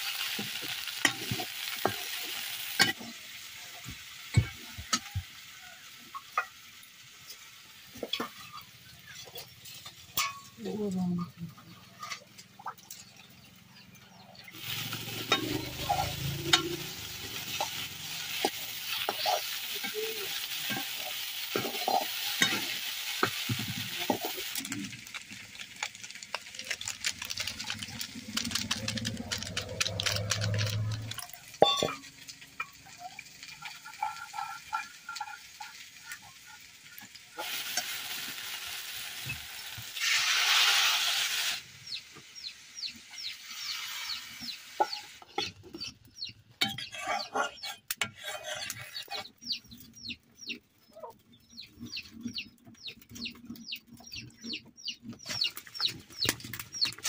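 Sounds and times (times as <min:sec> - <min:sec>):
okra sizzling in oil: 0:00.0 - 0:57.0
spatula scraping and clicking pan: 0:14.6 - 0:38.0, 0:43.6 - 0:50.0.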